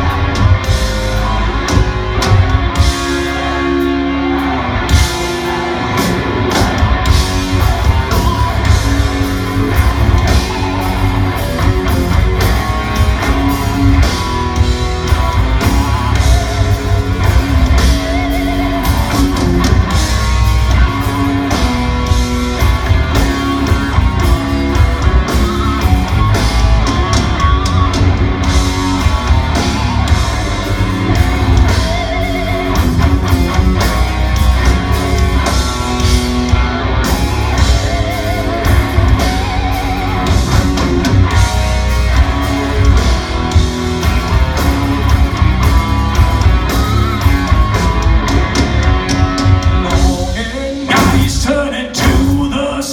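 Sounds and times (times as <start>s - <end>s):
metal band playing live: 0.0s - 52.9s.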